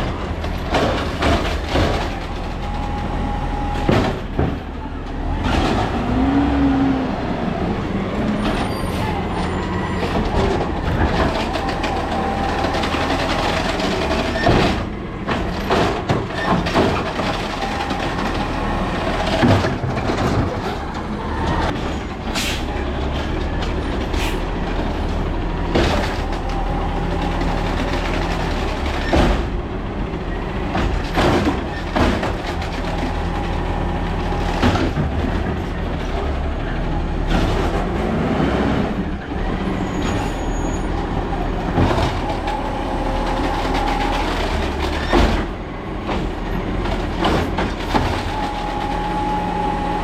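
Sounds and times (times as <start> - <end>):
truck diesel engine running: 0.0 - 50.0
sharp knocks and bangs: 0.4 - 2.5, 3.8 - 4.8, 9.9 - 24.4, 27.2 - 29.7, 30.6 - 33.4, 43.4 - 48.6.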